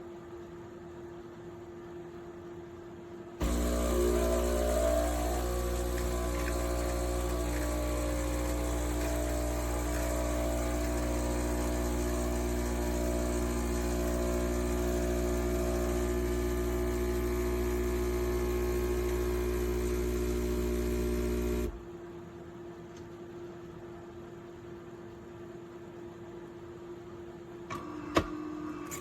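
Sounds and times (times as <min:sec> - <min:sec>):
espresso machine pump humming: 0:03.4 - 0:21.8.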